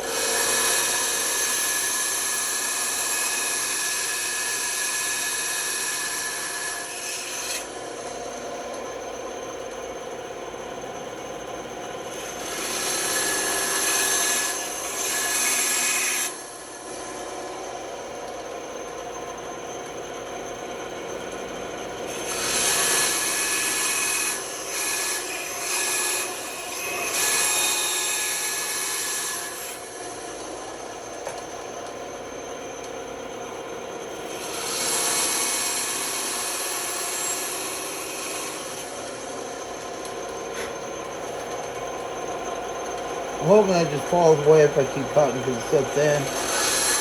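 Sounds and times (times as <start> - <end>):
band saw cutting wood: 0.0 - 7.9, 12.1 - 16.6, 22.1 - 30.2, 34.3 - 39.2, 43.4 - 47.0.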